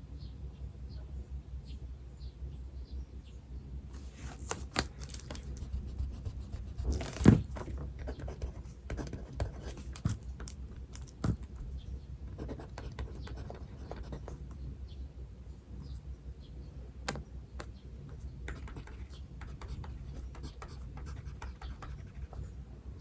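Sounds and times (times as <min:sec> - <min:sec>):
paper rustling: 0:04.0 - 0:07.8
pen scratching on paper: 0:05.4 - 0:10.2, 0:12.3 - 0:14.4, 0:18.5 - 0:22.5
thump on desk: 0:07.2 - 0:07.6.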